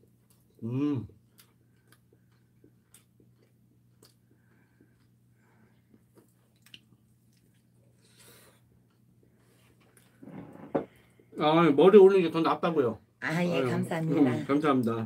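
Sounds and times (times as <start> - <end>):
person chewing food: 0.0 - 10.2.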